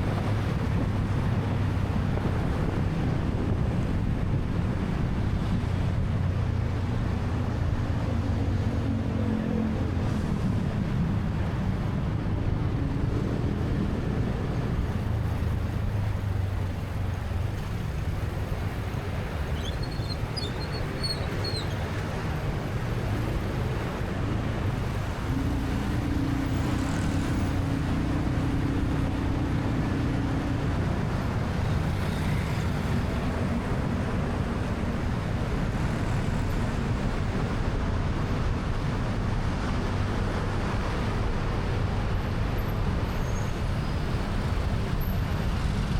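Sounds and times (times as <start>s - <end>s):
wind rush: 0.0s - 21.0s
motorcycle and traffic engines: 0.0s - 45.9s
road noise: 0.0s - 45.9s.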